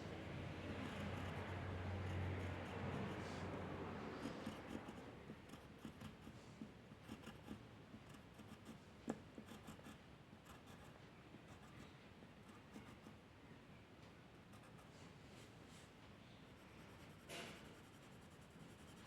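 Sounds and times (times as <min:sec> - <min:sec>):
drawing tool scratching on paper: 0:00.7 - 0:08.8, 0:16.9 - 0:19.0.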